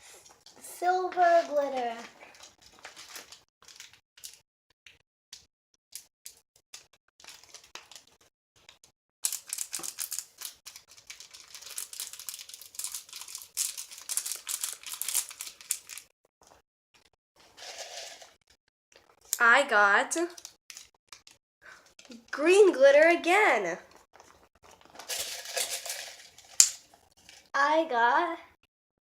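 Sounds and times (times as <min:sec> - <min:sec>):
plastic crinkling and rustling: 0:00.2 - 0:04.4, 0:07.2 - 0:08.3, 0:09.2 - 0:16.1, 0:17.4 - 0:19.2, 0:23.9 - 0:27.5.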